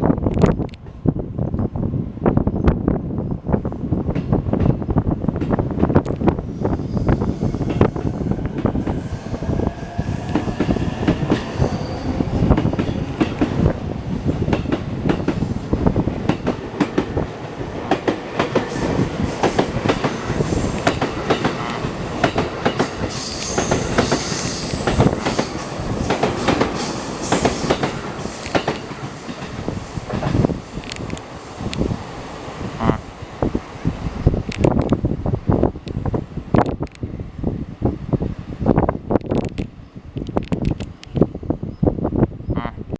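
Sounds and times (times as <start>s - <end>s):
electric train running past: 3.9s - 36.4s
faint rising whine: 6.3s - 14.5s
train wheels squealing: 6.4s - 15.8s, 18.6s - 21.8s, 22.8s - 30.9s.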